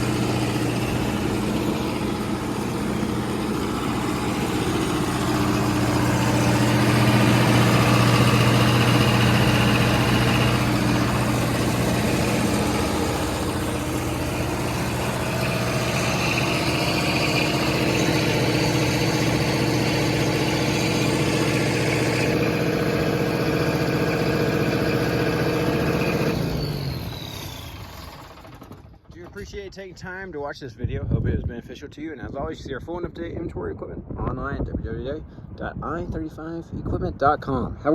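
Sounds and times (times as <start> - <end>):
diesel generator running: 0.0 - 30.0.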